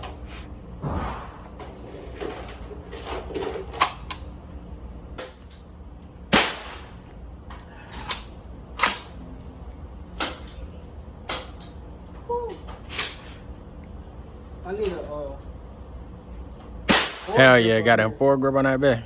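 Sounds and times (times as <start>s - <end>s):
gunshots: 0.8s - 1.8s.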